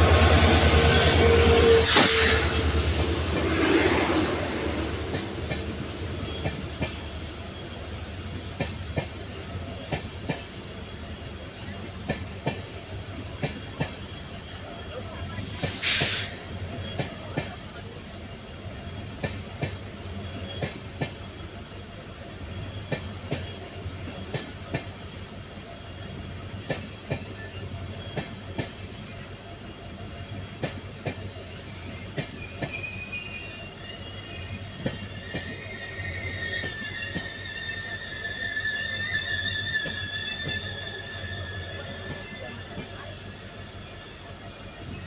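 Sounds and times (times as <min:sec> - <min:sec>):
high steady squeal: 0:00.0 - 0:45.0
train rumble: 0:00.0 - 0:45.0
wavering wheel squeals: 0:00.0 - 0:45.0.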